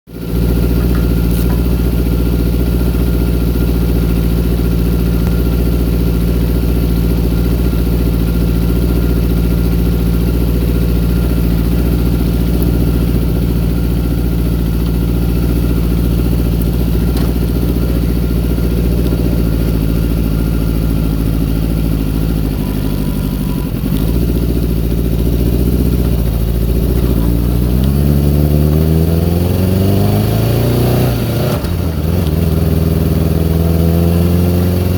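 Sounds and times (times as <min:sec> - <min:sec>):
motorcycle engine idling: 0:00.1 - 0:34.9.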